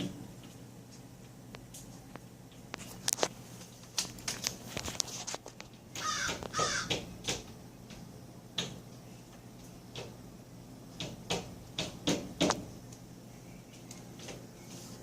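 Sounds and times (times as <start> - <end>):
bird harsh raspy calls: 6.0 - 6.9.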